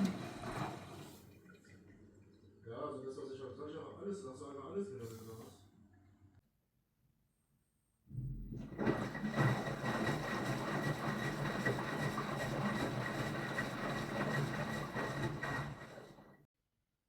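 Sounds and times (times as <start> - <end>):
washing machine running: 0.0 - 1.2, 8.2 - 16.5.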